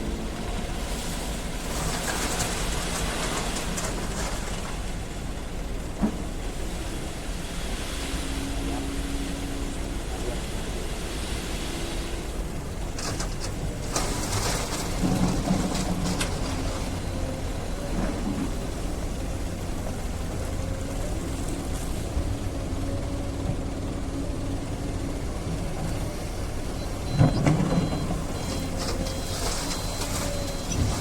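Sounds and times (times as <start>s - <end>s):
excavator diesel engine under load: 0.0s - 31.0s
alarm beeping: 26.7s - 31.0s.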